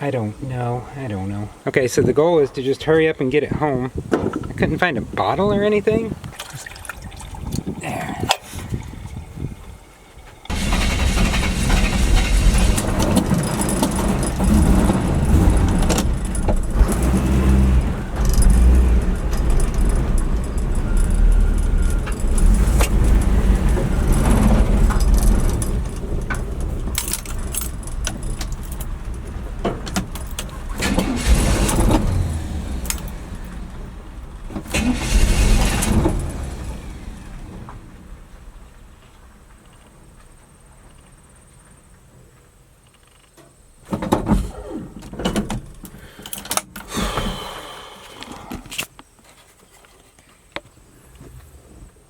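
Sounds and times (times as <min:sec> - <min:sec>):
truck engine running unsteadily: 0:09.4 - 0:38.7
loose parts rattling: 0:10.3 - 0:33.6.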